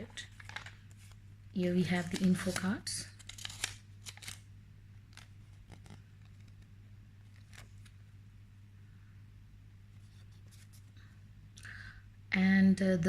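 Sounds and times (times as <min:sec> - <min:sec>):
paper and packaging rustling: 0:00.0 - 0:01.2, 0:01.8 - 0:04.4, 0:05.1 - 0:08.1
steady low hum: 0:00.0 - 0:13.0.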